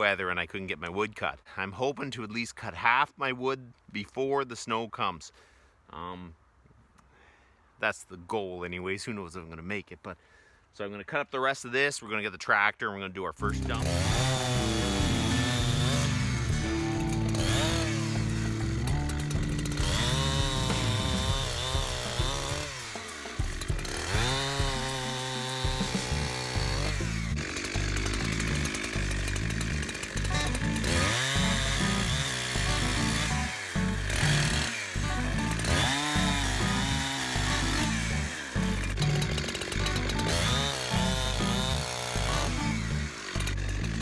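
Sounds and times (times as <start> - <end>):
background music: 13.4 - 44.0
chainsaw revving: 13.4 - 44.0.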